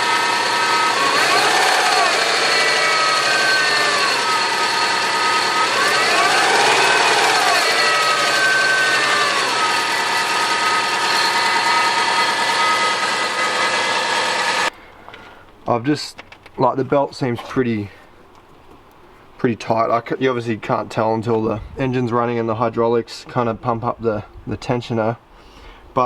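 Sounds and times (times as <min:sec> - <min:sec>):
engine revving: 0:00.0 - 0:14.7
steady whine: 0:00.0 - 0:14.8.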